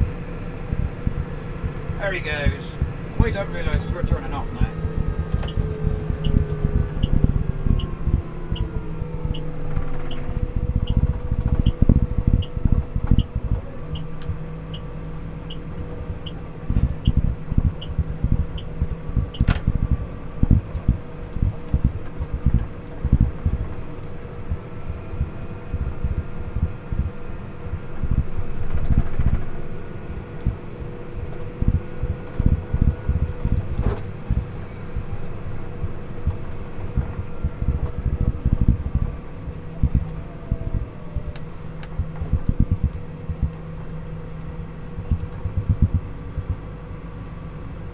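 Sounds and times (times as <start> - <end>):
car engine and road noise: 0.0 - 47.9
turn indicator ticking: 3.7 - 29.4, 31.2 - 35.2, 39.8 - 43.7, 44.9 - 46.7.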